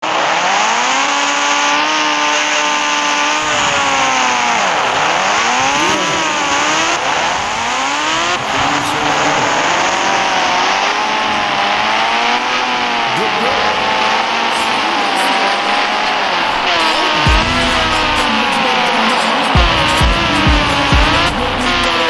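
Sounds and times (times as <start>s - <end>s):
vehicle engine revving: 0.0s - 22.0s.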